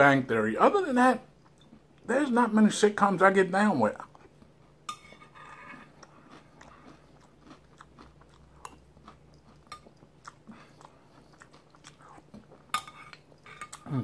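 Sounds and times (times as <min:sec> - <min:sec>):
person chewing cereal: 0:04.0 - 0:13.9.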